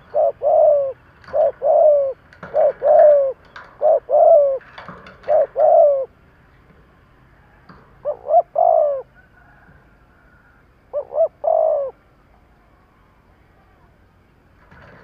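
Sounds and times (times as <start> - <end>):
dove cooing: 0.0 - 6.2, 7.8 - 9.5, 10.9 - 12.0.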